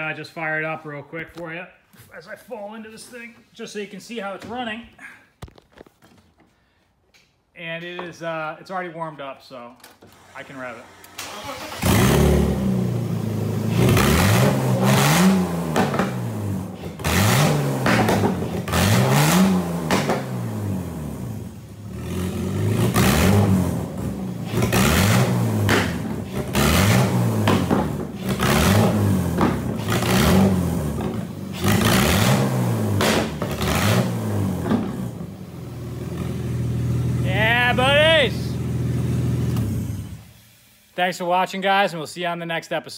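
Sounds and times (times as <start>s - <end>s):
car engine revving in blips: 11.1s - 40.3s.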